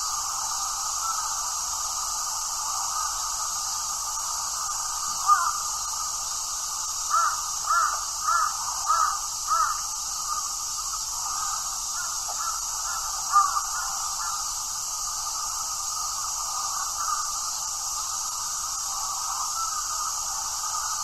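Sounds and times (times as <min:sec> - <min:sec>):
steady high hiss: 0:00.0 - 0:21.0
bird calling: 0:04.3 - 0:05.7, 0:07.1 - 0:14.4, 0:16.0 - 0:17.3.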